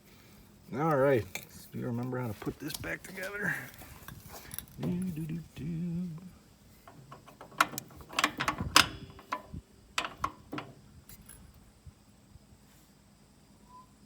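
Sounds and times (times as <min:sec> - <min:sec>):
metal parts clinking: 0:02.4 - 0:05.2, 0:06.8 - 0:11.6.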